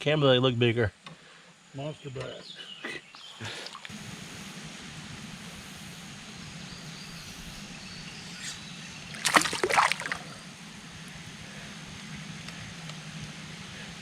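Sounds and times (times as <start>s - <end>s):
water splashing and sloshing: 3.4s - 3.9s, 9.1s - 10.5s.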